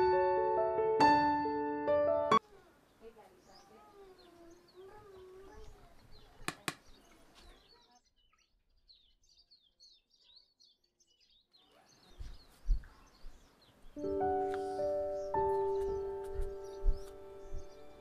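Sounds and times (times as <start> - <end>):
small birds chirping: 2.3 - 18.0.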